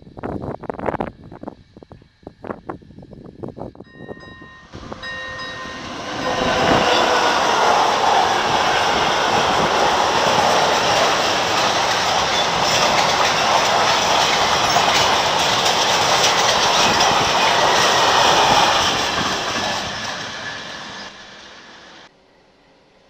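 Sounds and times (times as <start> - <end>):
train wheels clattering on rails: 4.7 - 22.1.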